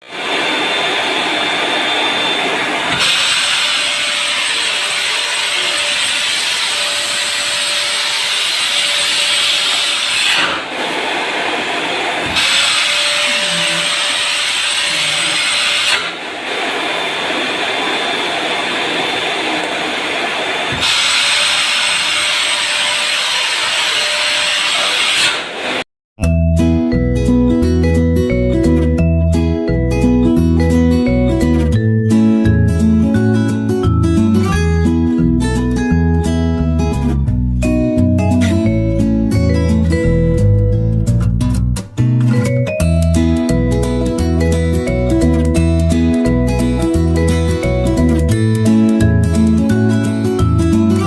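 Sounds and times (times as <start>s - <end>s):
vacuum cleaner motor running: 0.0s - 25.8s
acoustic guitar music: 26.2s - 51.0s.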